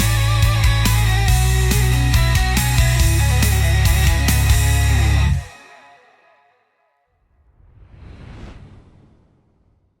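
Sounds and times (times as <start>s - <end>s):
rushing whoosh: 7.2s - 10.0s
low rumble: 7.3s - 10.0s.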